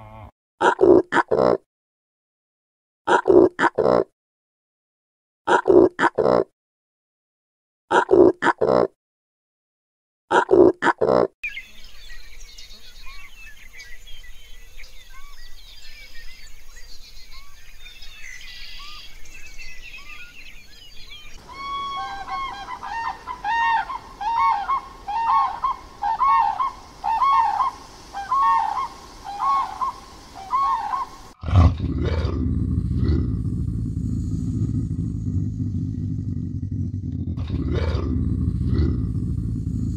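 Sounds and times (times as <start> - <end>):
small birds chirping: 11.4 - 39.9
water birds honking: 21.4 - 31.4
loud low sound: 31.5 - 39.9.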